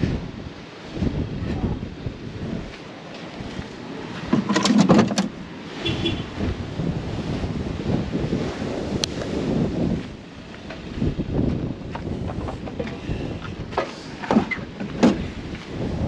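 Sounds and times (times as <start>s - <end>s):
storm surf: 0.0s - 16.0s
wind buffeting microphone: 0.0s - 16.0s.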